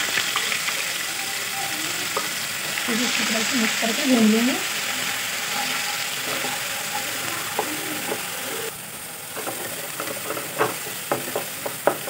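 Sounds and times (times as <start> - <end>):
paste sizzling in hot oil: 0.0 - 12.0
wooden spatula scraping pan: 4.8 - 8.7, 9.3 - 12.0.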